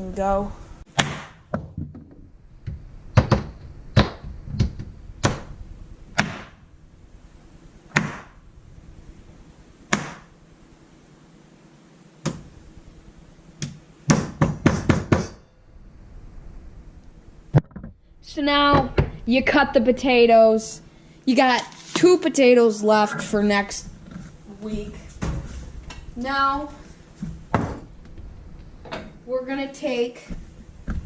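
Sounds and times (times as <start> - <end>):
objects knocking on a counter: 27.2 - 27.9.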